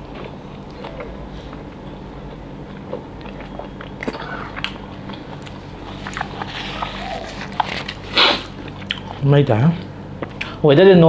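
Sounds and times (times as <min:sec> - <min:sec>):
faint low hum: 0:00.0 - 0:11.0
wet chewing and lip-smacking: 0:02.6 - 0:09.2.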